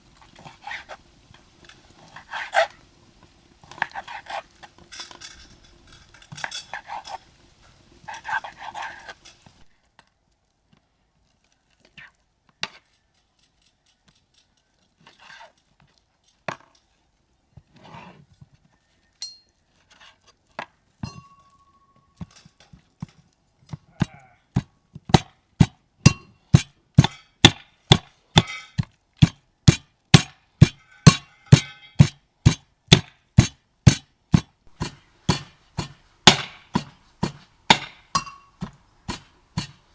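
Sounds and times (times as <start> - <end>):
knocks and clinks: 21.0 - 22.4, 25.6 - 28.9, 29.7 - 39.8
chopping strikes on wood: 24.6 - 28.6, 29.2 - 39.8.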